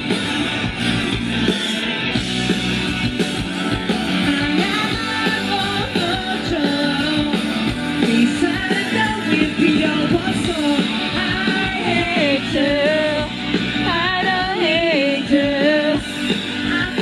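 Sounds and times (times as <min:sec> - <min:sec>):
rock band playing: 0:00.0 - 0:17.0
man singing: 0:08.1 - 0:13.3.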